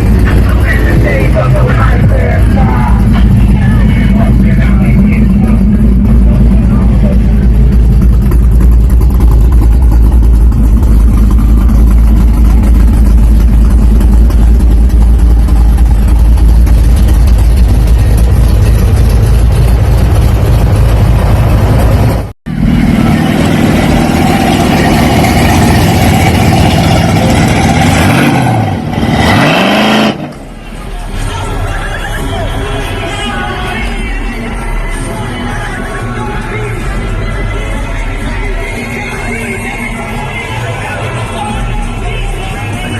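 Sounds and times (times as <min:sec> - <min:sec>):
engine revving: 0:00.0 - 0:30.6
car engine rumbling: 0:00.0 - 0:42.9.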